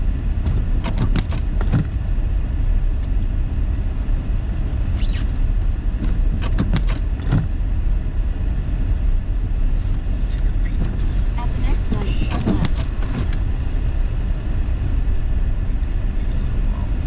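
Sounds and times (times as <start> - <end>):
car driving through deep snow: 0.0 - 17.0
sharp knocks: 0.4 - 2.0.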